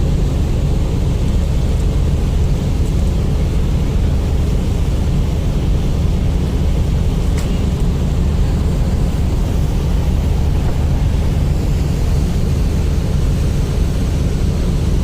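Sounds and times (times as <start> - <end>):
ship diesel engines rumbling: 0.0 - 15.0.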